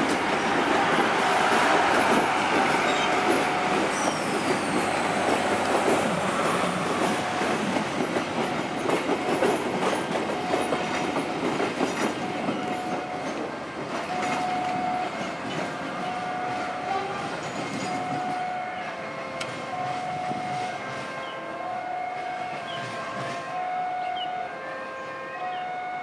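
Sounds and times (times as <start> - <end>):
train wheels clattering: 0.0 - 18.6.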